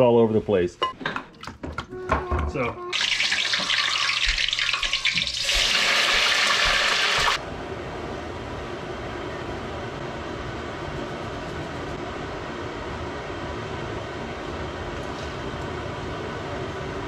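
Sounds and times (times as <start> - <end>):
fries sizzling in hot oil: 2.9 - 7.4.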